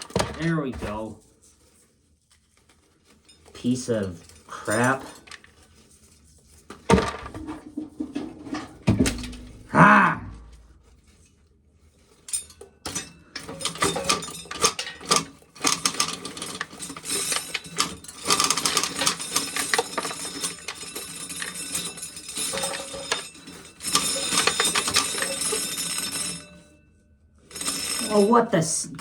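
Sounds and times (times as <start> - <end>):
corn sheller rattling: 2.8 - 11.1, 12.2 - 26.6, 27.5 - 28.5.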